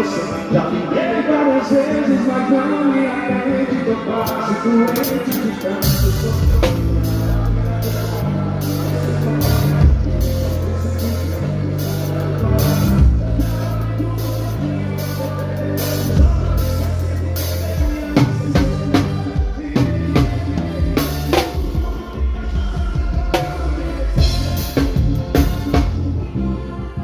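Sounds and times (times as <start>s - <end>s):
drum kit hits: 5.9s - 11.4s, 16.0s - 26.2s
bass line of low notes: 5.9s - 21.4s, 23.6s - 27.0s.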